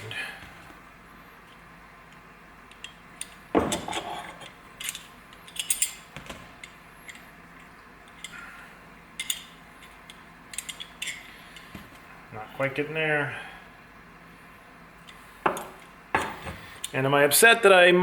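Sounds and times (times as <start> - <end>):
small metal parts clicking: 2.7 - 7.3, 9.2 - 11.7.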